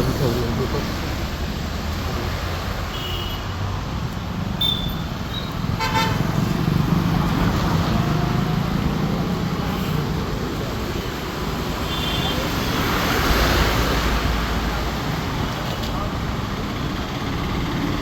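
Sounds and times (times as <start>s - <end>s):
road traffic passing: 0.0s - 18.0s
vehicle horn honk: 4.6s - 6.3s.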